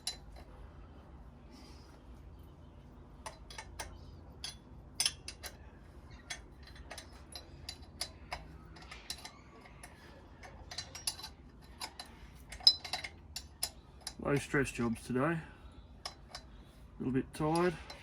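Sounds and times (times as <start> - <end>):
metallic tool clicks and clinks: 6.2 - 14.2.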